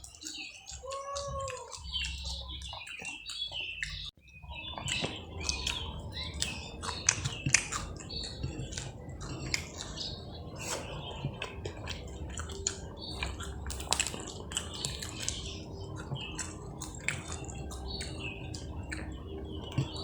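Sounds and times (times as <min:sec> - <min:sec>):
squeaky mouth sounds: 0:00.0 - 0:04.1
lip-smacking clicks: 0:00.0 - 0:04.2, 0:04.8 - 0:20.0
crunching of fried food: 0:00.0 - 0:20.0.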